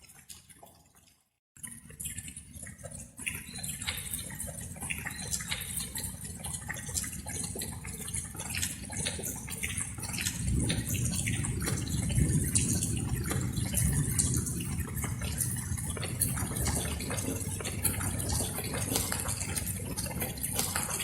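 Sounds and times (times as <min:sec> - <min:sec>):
rain drops dripping: 0:00.0 - 0:21.0
low steady rumble: 0:09.6 - 0:21.0.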